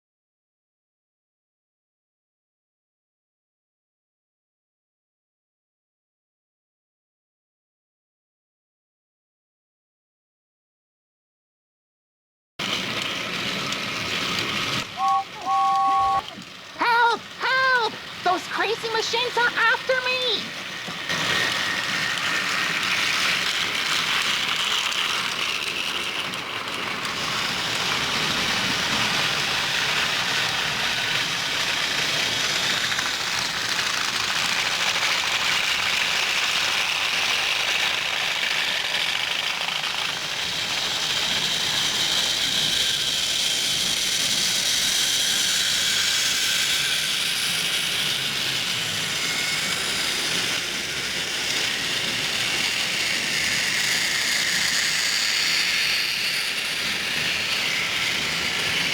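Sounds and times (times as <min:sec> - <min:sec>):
toy train wheels clattering: 0:12.6 - 0:58.9
small motors whining: 0:12.7 - 0:58.9.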